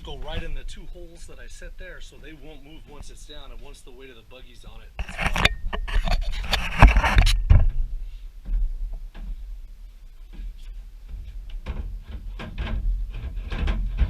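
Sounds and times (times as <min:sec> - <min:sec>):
metal clattering and scraping: 0:04.6 - 0:09.5, 0:10.4 - 0:14.0
metal knocks: 0:11.1 - 0:14.0.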